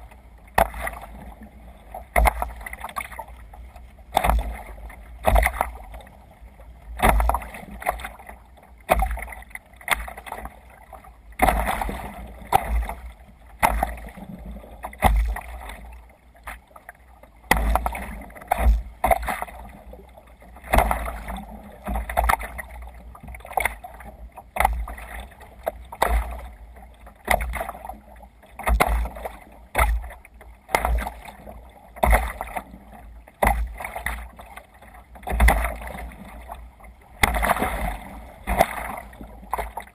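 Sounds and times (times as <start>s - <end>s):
water splashing against kayak hull: 0.0s - 39.9s.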